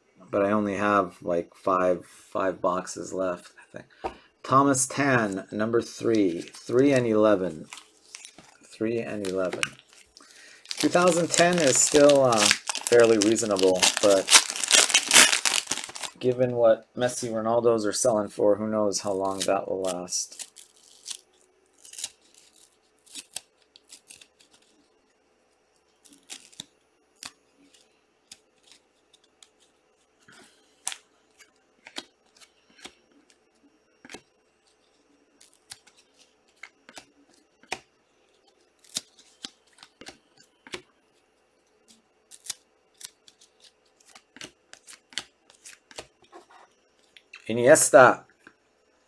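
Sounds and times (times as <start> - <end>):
cards clicking and snipping: 35.4 - 37.9, 42.3 - 46.1.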